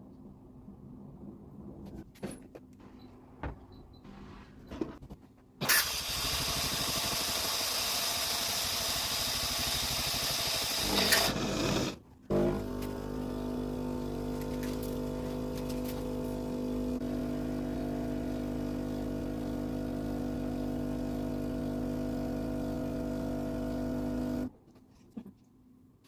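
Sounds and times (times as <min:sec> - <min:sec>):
coffee machine humming: 0:05.6 - 0:24.5.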